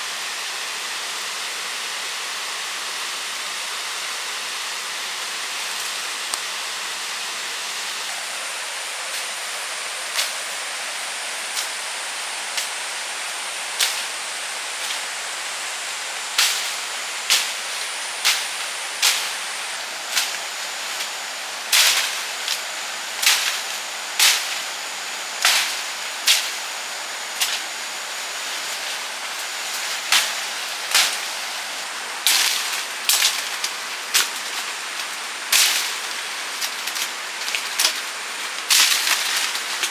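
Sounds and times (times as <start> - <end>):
steady rushing hiss: 0.0 - 39.9
sharp cracks or snaps: 23.2 - 24.8, 25.4 - 26.7, 28.4 - 39.9.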